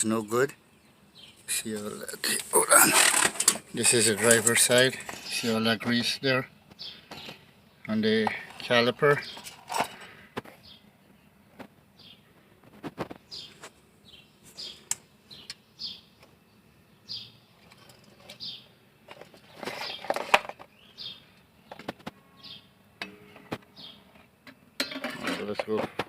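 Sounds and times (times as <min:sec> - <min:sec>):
small birds chirping: 0:00.0 - 0:25.8
rustling clatter: 0:01.8 - 0:06.2, 0:08.2 - 0:10.6, 0:17.6 - 0:20.8, 0:23.4 - 0:26.0.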